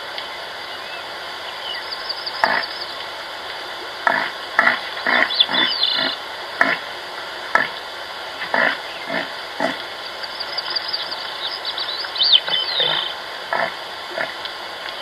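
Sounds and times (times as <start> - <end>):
steady hiss: 0.0 - 15.0
animal grunting: 4.0 - 6.9, 7.5 - 7.8, 8.4 - 9.9, 12.5 - 14.4
faint high chirps: 10.2 - 13.2.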